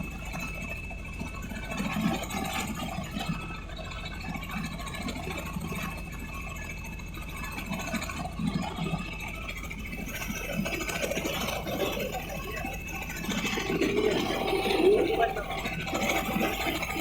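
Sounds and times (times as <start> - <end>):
engine running: 8.1 - 17.0.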